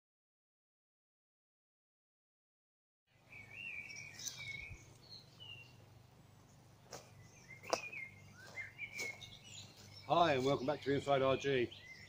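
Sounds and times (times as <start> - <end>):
birds warbling: 3.1 - 12.0
faint outdoor background noise: 3.1 - 12.0.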